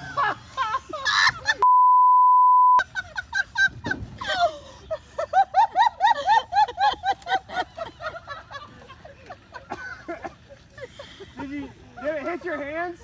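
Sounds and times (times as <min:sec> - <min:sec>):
laughter: 0:00.0 - 0:01.6, 0:02.8 - 0:13.0
censor bleep tone: 0:01.6 - 0:02.8.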